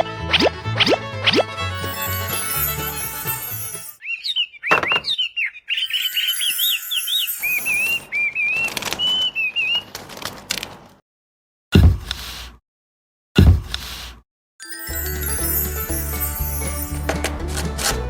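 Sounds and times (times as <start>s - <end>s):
small bird chirping: 4.0s - 9.9s.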